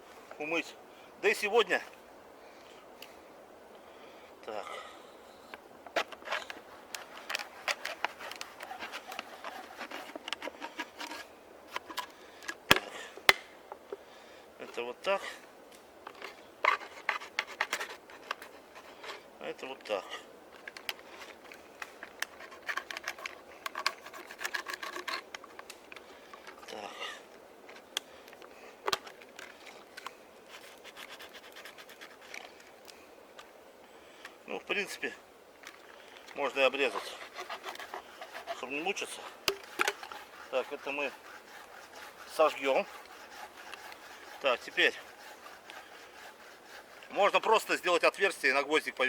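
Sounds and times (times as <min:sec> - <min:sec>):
knife scraping plastic: 0:06.0 - 0:12.1, 0:16.2 - 0:19.0, 0:22.0 - 0:25.8, 0:28.9 - 0:32.5, 0:36.7 - 0:47.8.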